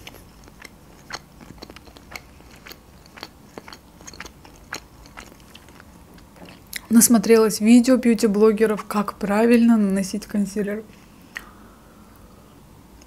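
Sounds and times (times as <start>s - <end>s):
chewing with wet mouth clicks: 0.0s - 6.9s.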